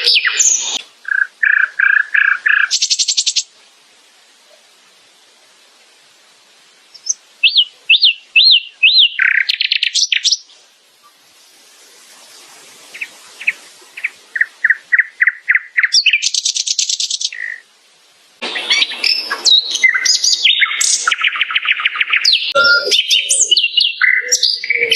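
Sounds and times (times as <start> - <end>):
nightingale singing: 0.0 - 3.6, 6.8 - 11.2, 12.9 - 17.7, 18.4 - 24.9.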